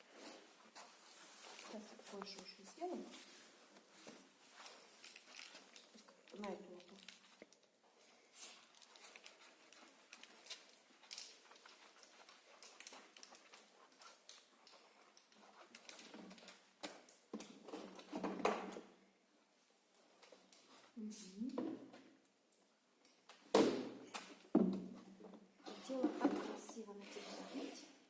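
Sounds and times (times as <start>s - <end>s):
patter and rustling of wet dog: 0.1s - 17.5s.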